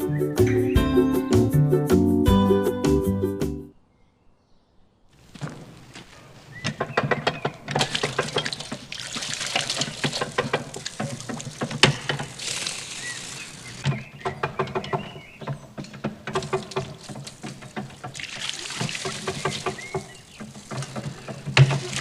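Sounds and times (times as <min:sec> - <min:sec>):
water pouring and splashing: 0:07.0 - 0:14.0, 0:15.9 - 0:22.0
small clicks and knocks: 0:13.8 - 0:18.1.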